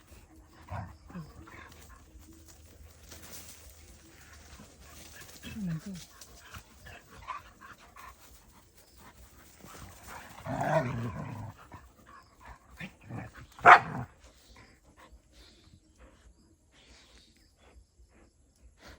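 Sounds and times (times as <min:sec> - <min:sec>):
dogs scuffling while playing: 0:00.7 - 0:11.6
dog barking: 0:13.6 - 0:14.0.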